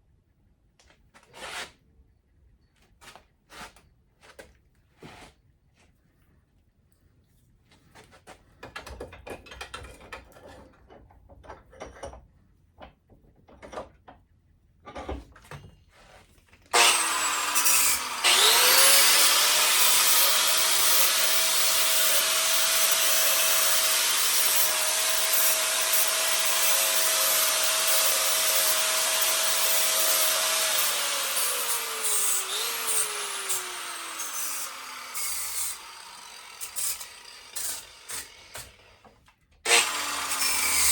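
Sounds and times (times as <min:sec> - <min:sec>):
knocks and clatter of parts: 0:08.2 - 0:16.7
power tool grinding: 0:16.7 - 0:39.1, 0:39.7 - 0:40.9.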